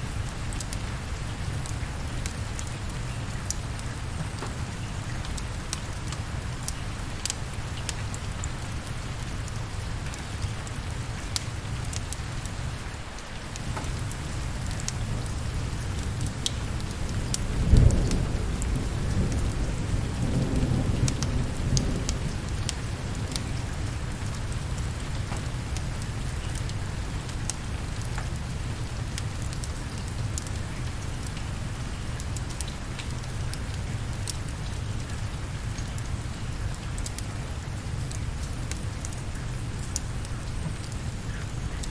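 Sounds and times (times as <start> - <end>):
steady rain: 0.0 - 41.9
thunder clap and rumble: 13.6 - 25.0.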